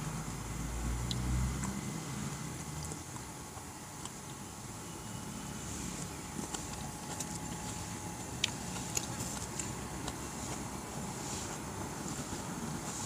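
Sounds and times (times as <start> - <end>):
steady outdoor hiss: 0.0 - 13.0
person chewing food: 6.0 - 10.8.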